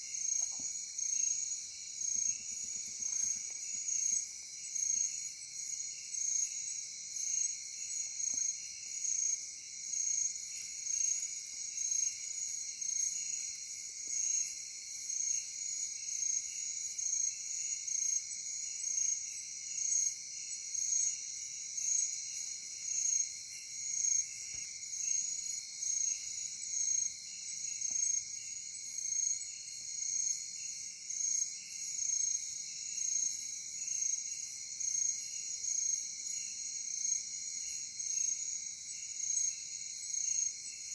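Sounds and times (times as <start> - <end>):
crickets and insects trilling: 15.5 - 40.9.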